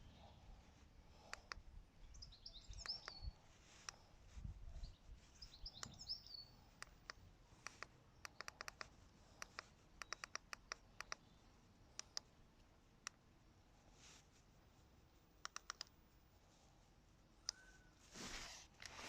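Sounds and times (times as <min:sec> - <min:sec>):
sharp irregular clicks: 0:01.2 - 0:01.6, 0:06.7 - 0:11.2, 0:11.9 - 0:13.2, 0:15.4 - 0:16.0
bird chirping: 0:01.3 - 0:04.0, 0:04.7 - 0:12.3, 0:17.4 - 0:18.0.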